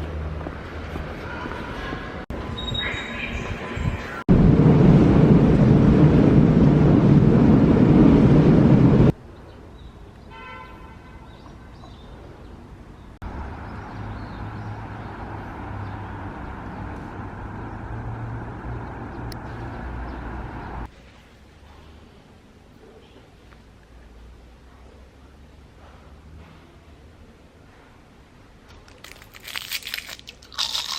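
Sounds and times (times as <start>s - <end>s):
train rumbling: 0.2s - 9.2s
vehicle engine humming: 13.2s - 20.9s.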